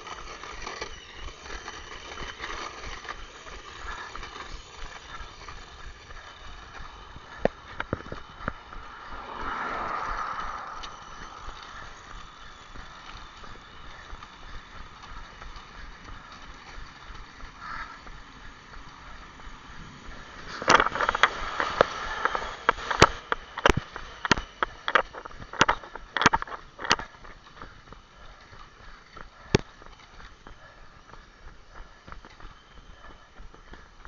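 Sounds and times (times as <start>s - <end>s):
rushing movement noise: 0.0s - 34.0s.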